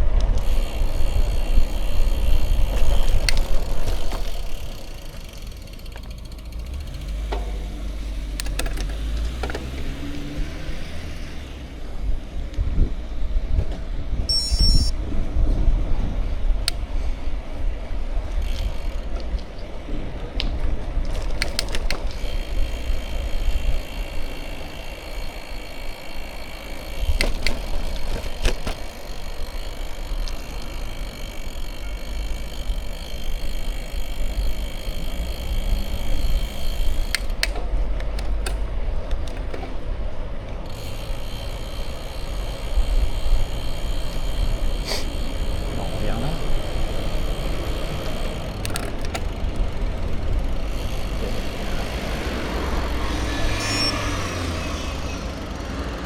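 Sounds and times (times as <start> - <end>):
bike clicks and rattles: 0.0 - 11.7, 12.4 - 53.0
high steady whine: 14.3 - 15.0.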